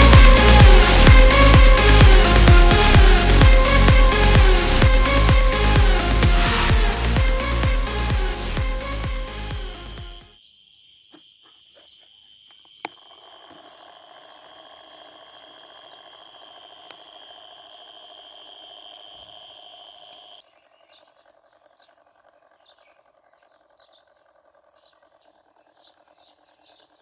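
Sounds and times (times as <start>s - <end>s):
faint chirps: 10.4s - 27.0s
small motors whirring: 12.8s - 20.4s.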